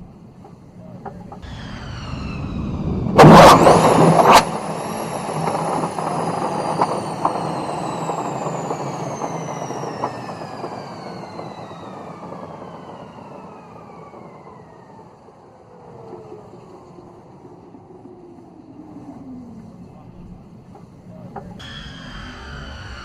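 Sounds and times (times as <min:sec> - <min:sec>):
jet engine turbine whine: 0:00.0 - 0:23.0
loud rushing burst: 0:01.4 - 0:06.2, 0:21.6 - 0:23.0.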